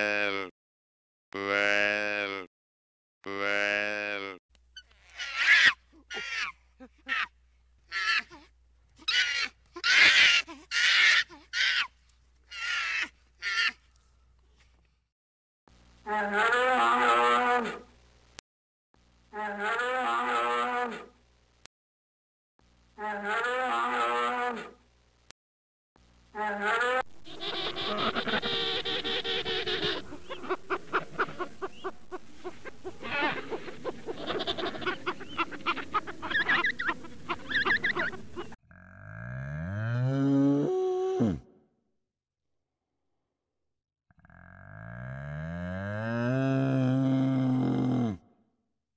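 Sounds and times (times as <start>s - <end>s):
baboons calling: 4.8s - 7.3s, 9.0s - 11.9s, 12.5s - 13.8s, 26.6s - 38.6s.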